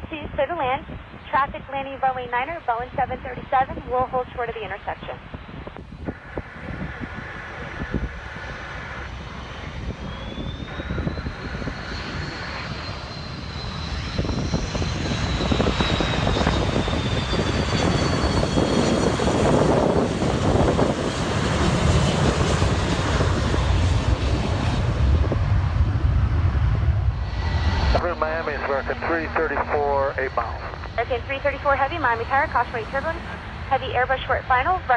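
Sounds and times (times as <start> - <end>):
deep jet rumble: 0.0 - 34.9
jet airliner engine whine: 0.0 - 34.9.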